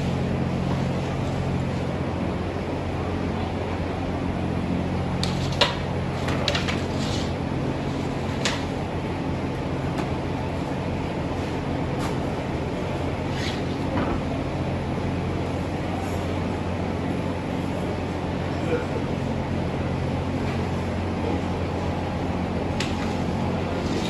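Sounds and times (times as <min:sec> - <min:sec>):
kitchen machine hum: 0:00.0 - 0:24.0.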